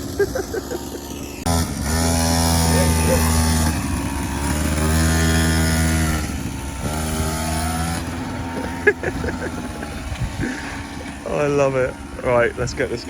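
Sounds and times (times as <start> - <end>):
quad bike engine running: 0.0 - 13.0.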